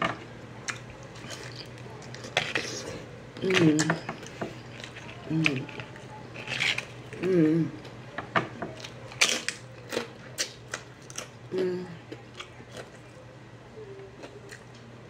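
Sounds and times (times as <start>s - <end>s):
chips crunching being chewed: 0.6s - 8.0s, 8.7s - 11.4s
person humming: 5.3s - 5.7s, 7.2s - 7.8s, 11.5s - 12.0s.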